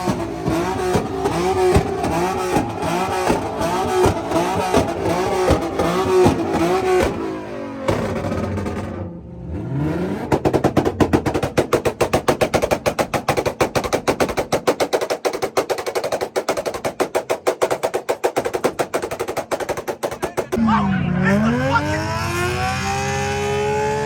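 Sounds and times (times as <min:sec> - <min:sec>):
exhaust crackling and popping: 0:00.0 - 0:09.2, 0:10.1 - 0:20.6
car engine revving: 0:00.0 - 0:13.3, 0:20.5 - 0:24.0.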